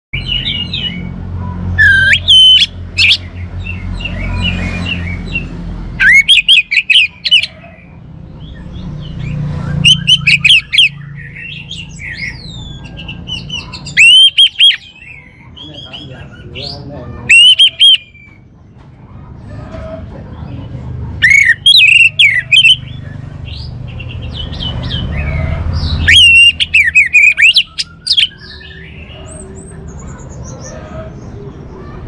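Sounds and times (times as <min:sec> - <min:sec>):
thrush singing whistled notes: 0:00.2 - 0:07.6, 0:08.4 - 0:16.2, 0:17.3 - 0:18.4, 0:21.2 - 0:29.3.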